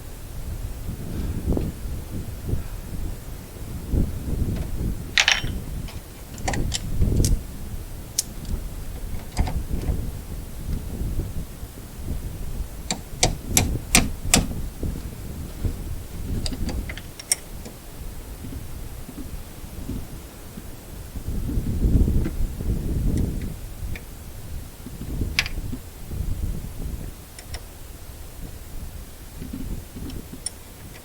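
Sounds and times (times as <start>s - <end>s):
wind rumble on microphone: 0.0s - 31.0s
hand tools clicking and clinking: 5.2s - 7.4s.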